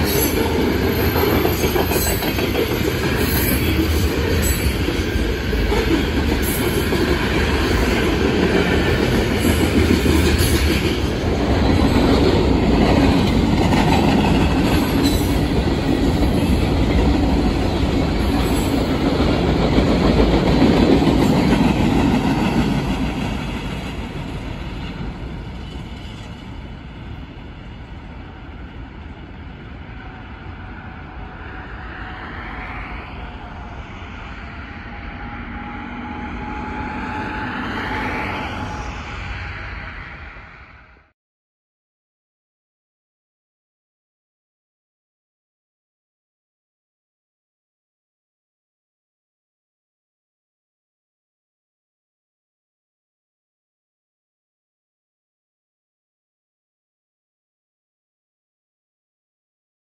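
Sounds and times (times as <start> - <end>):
freight train wheels rumbling on rails: 0.0 - 41.1.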